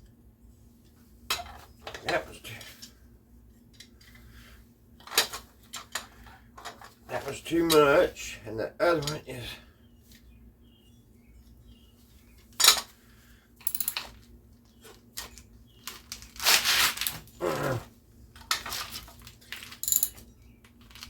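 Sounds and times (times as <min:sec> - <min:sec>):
metal tools clinking: 0:09.0 - 0:09.3, 0:13.6 - 0:14.2, 0:18.5 - 0:21.0.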